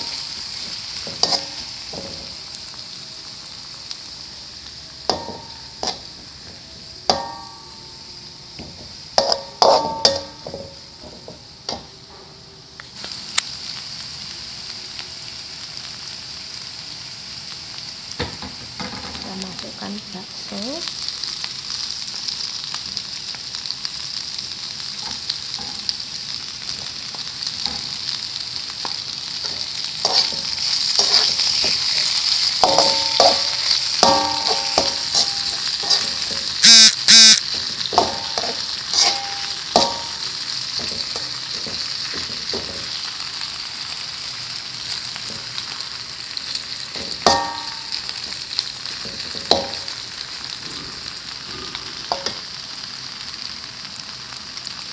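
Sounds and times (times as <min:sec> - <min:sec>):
meatballs sizzling in hot oil: 0:00.0 - 0:12.1, 0:12.8 - 0:54.9
metal spatula clanking on pan: 0:01.0 - 0:02.4, 0:05.1 - 0:06.1, 0:07.1 - 0:08.0, 0:08.6 - 0:11.9, 0:28.8 - 0:36.6, 0:37.5 - 0:43.0, 0:47.0 - 0:48.4, 0:49.0 - 0:50.0, 0:52.1 - 0:52.4.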